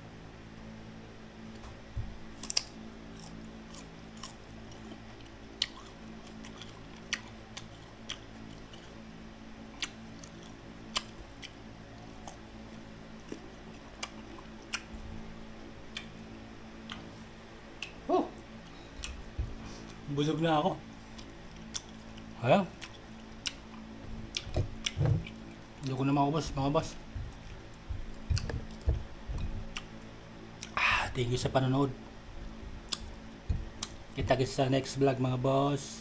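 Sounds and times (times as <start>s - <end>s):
steady low hum: 0.0s - 36.0s
crunchy chewing of fruit: 2.3s - 20.1s, 20.8s - 35.1s.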